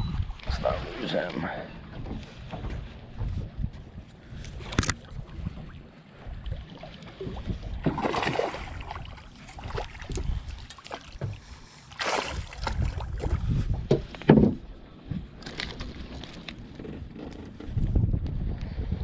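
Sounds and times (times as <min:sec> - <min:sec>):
wind on microphone: 0:00.0 - 0:01.0, 0:02.0 - 0:10.7, 0:12.2 - 0:16.3, 0:17.0 - 0:19.0
fish splashing at water surface: 0:07.9 - 0:11.2, 0:11.9 - 0:13.1.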